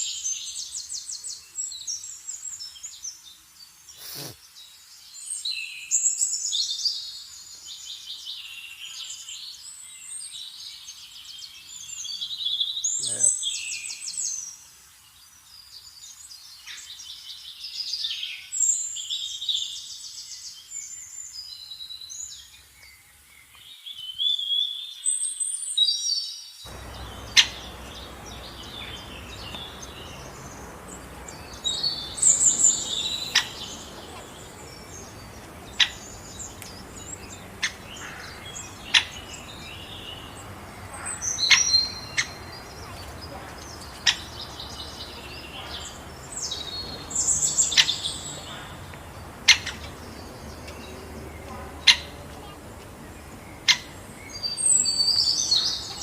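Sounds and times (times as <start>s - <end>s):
birds chirping: 3.8s - 4.6s, 26.7s - 56.0s
steady background hiss: 26.6s - 56.0s.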